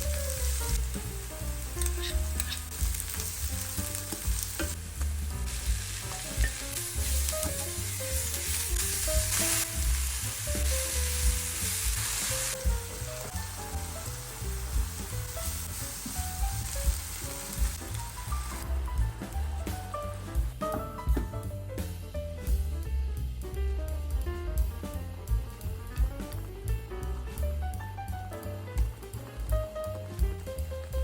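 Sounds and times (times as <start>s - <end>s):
food sizzling in a pan: 0.0s - 20.6s.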